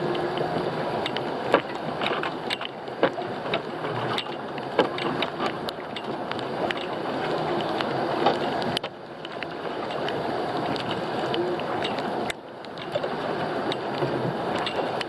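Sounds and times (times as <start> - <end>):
boat engine running: 0.0 - 15.0
sharp clicks and knocks: 1.0 - 7.0.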